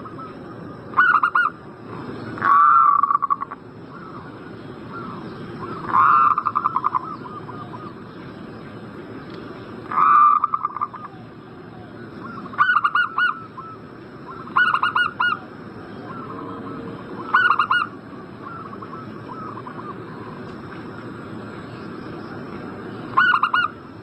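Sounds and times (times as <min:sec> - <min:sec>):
steady hiss: 0:00.0 - 0:24.0
doves cooing: 0:02.3 - 0:08.0, 0:09.8 - 0:21.0, 0:23.1 - 0:23.8.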